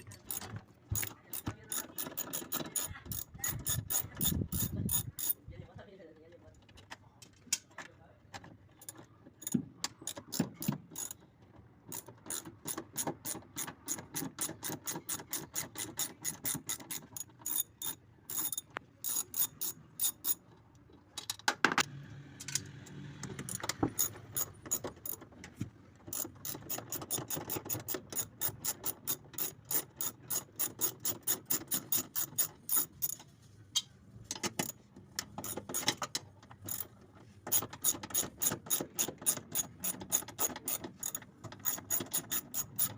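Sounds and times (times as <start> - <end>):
socket ratchet clicking: 11.9 - 20.4, 37.5 - 42.9.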